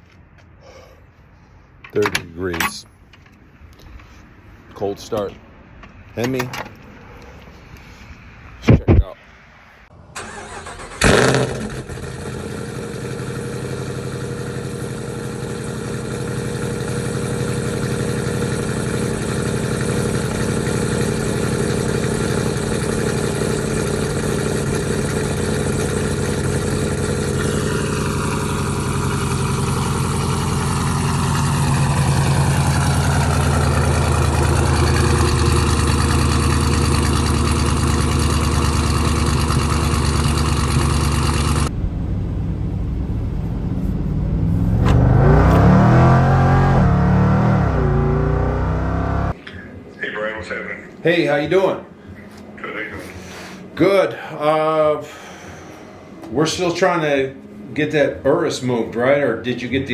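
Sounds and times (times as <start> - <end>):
engine starting and idling: 10.1 - 49.4
high whine sliding down: 40.5 - 49.3.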